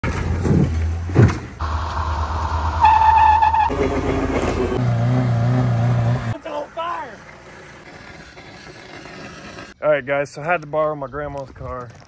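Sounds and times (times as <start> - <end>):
car engine revving: 1.6 - 6.4.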